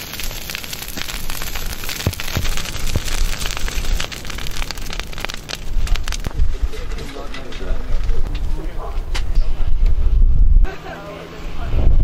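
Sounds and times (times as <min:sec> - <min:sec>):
fire hissing: 0:00.0 - 0:08.8
bonfire crackling and popping: 0:00.0 - 0:10.0.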